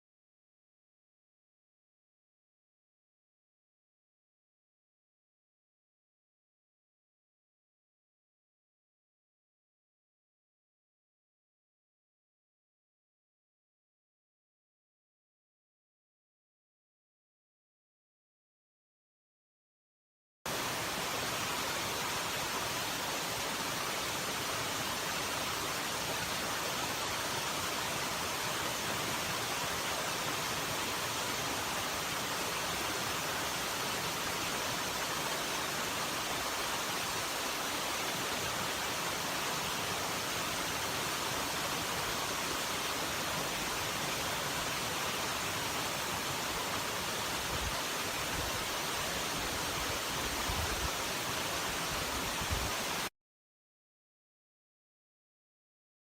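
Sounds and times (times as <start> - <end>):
rushing water: 20.5 - 53.1.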